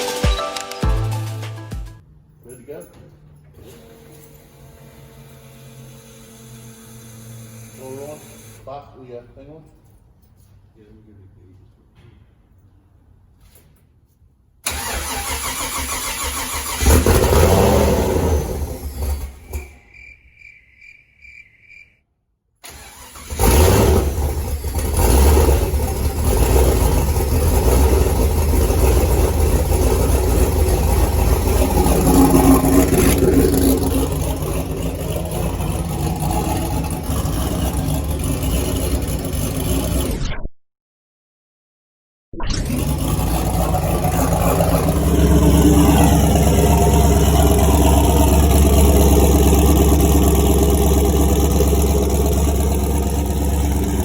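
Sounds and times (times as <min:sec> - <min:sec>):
car engine cranking and running unevenly: 0:14.6 - 0:19.6, 0:22.6 - 0:40.1, 0:42.6 - 0:54.0.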